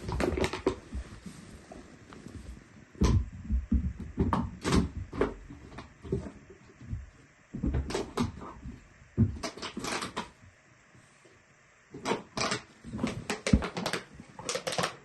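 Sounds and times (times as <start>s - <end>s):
quiet scuffling: 0.0s - 4.1s
irregular knocks and thumps: 3.0s - 9.6s.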